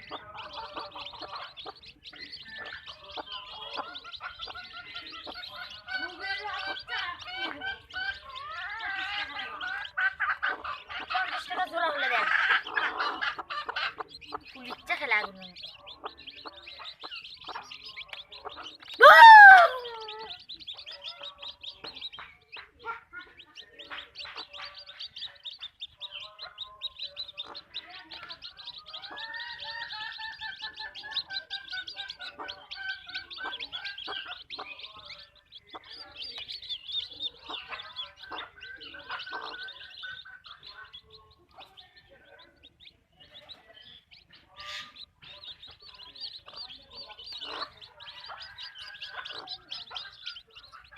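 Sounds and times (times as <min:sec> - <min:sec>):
hens clucking and calling: 0:00.0 - 0:42.6
hen squawk: 0:19.0 - 0:20.3.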